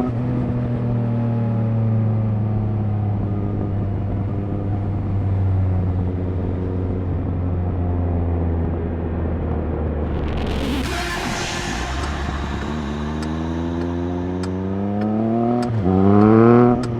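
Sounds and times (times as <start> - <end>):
motorcycle engine revs falling: 12.0 - 16.9.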